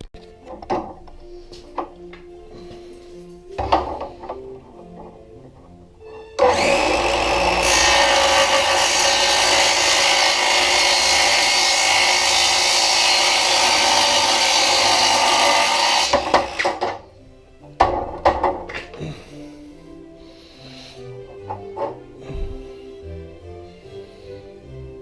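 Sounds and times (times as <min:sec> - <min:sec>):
power tool cutting glass: 0:06.4 - 0:17.0.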